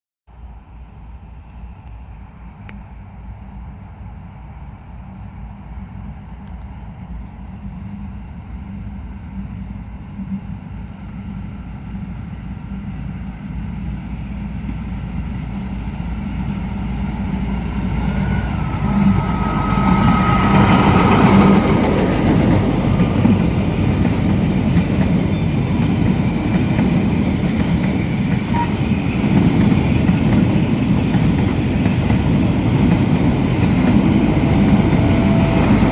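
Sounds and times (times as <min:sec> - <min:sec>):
locomotive engine rumble: 0:13.8 - 0:35.9.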